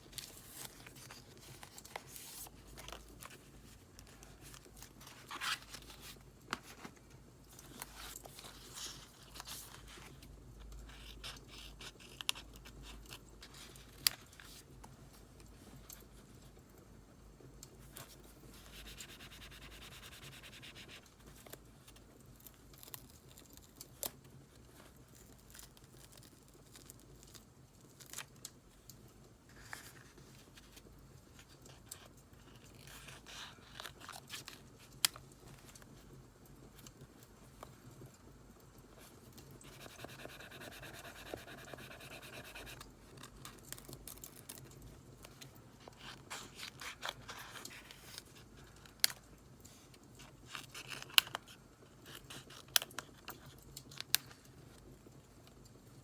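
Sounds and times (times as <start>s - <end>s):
paper scratching and rubbing: 18.6s - 21.0s, 39.6s - 42.8s.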